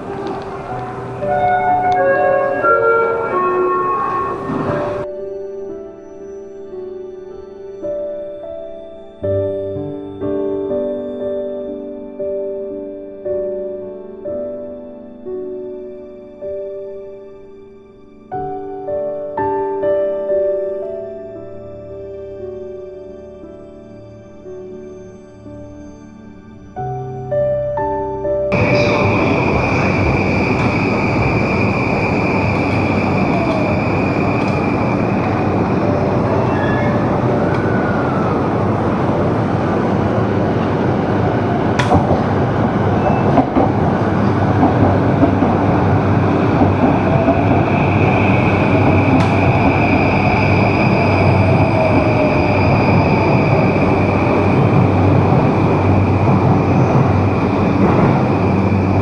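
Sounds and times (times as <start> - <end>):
faint gliding whines: 0.0 - 5.1, 28.5 - 59.0
train rumble: 0.0 - 5.1, 28.5 - 59.0.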